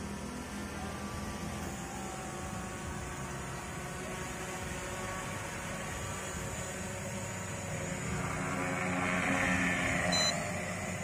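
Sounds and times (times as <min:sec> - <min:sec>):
drone propellers humming: 0:00.0 - 0:11.0.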